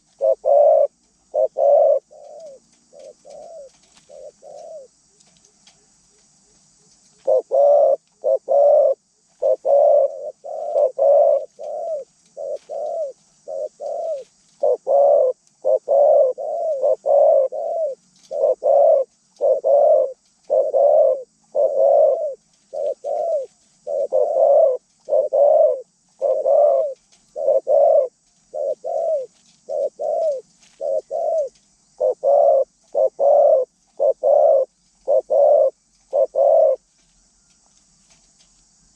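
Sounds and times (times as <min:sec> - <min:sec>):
dove cooing: 0:00.0 - 0:37.5.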